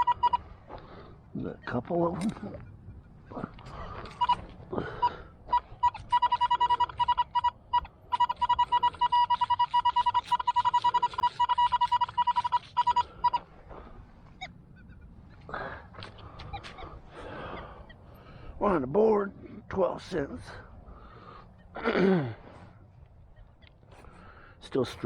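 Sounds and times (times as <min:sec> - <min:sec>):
metal detector beeping: 0:00.0 - 0:00.5, 0:01.4 - 0:13.5.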